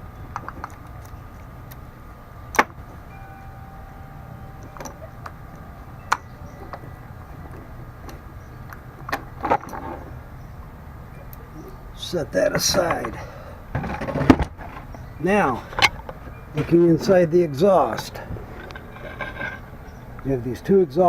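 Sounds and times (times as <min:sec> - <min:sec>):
low hum: 0:00.0 - 0:21.0
metal tools clicking and clinking: 0:04.4 - 0:10.0.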